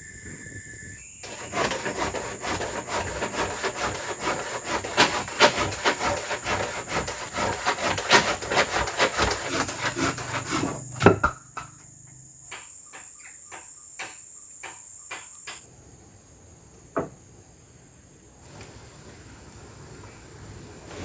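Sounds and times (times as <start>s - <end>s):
high-pitched insect drone: 0.0s - 7.4s, 9.2s - 15.7s
hand saw cutting wood: 1.2s - 11.2s
wood knocking: 1.3s - 11.9s, 12.5s - 15.6s.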